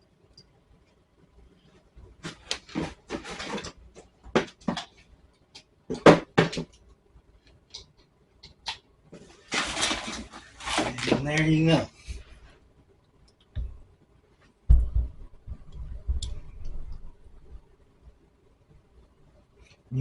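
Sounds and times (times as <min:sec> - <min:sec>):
rustling: 0:01.6 - 0:03.9, 0:09.1 - 0:12.6.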